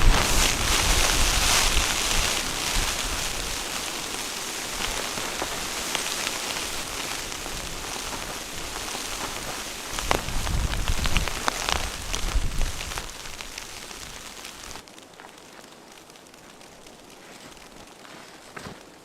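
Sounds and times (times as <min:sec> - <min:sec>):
blizzard snow hissing: 0:00.0 - 0:14.8.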